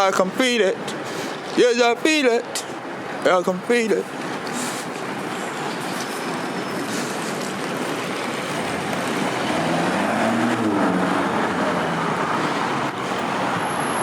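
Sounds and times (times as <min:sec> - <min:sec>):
traffic roar: 0:00.0 - 0:14.0
vehicle engine passing by: 0:08.1 - 0:14.0.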